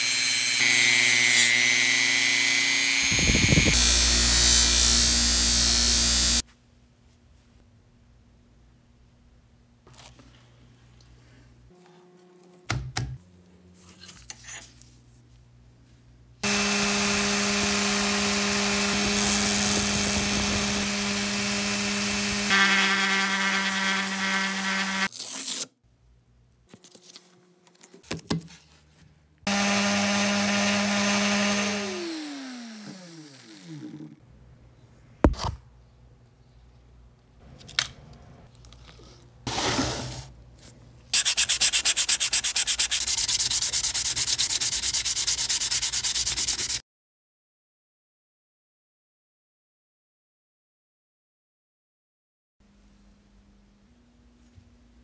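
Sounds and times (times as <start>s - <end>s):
orbital sander on metal: 0.0s - 6.4s, 16.4s - 25.1s, 29.5s - 33.4s
hand sanding with sandpaper: 41.2s - 46.8s.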